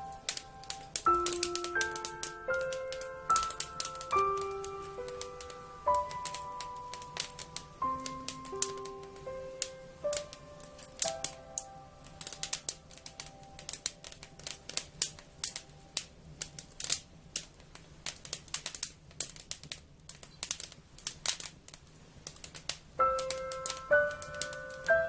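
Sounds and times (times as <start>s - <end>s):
held musical tones: 0.0s - 13.7s
wood fire crackling: 0.0s - 25.0s.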